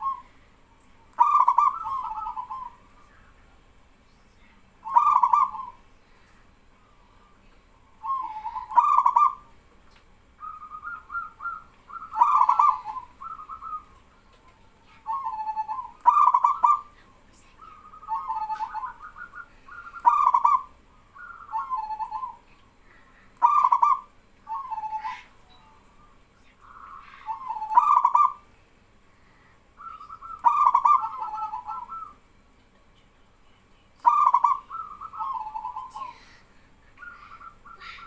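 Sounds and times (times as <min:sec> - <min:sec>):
doves cooing: 0:00.0 - 0:00.4, 0:01.0 - 0:02.9, 0:04.8 - 0:05.8, 0:07.2 - 0:09.6, 0:10.4 - 0:22.5, 0:23.3 - 0:25.4, 0:26.6 - 0:28.5, 0:29.8 - 0:32.2, 0:34.0 - 0:38.0.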